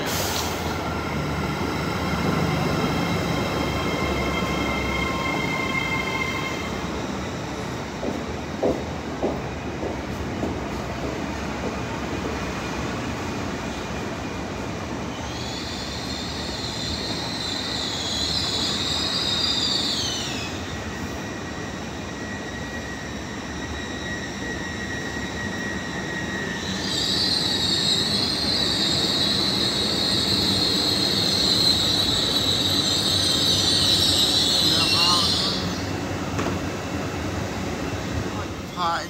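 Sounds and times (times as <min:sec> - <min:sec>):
high-pitched brake squeal: 0:00.0 - 0:07.8, 0:15.0 - 0:36.0
train rumbling past: 0:00.0 - 0:39.0.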